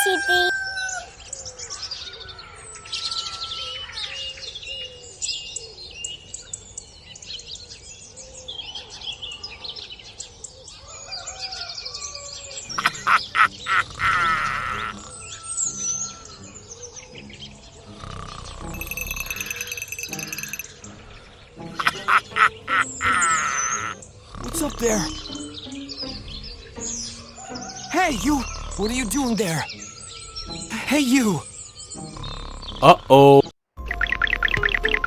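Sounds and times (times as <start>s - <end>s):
birds chirping: 12.7s - 35.0s
rapid animal call: 12.8s - 15.2s, 21.8s - 25.5s.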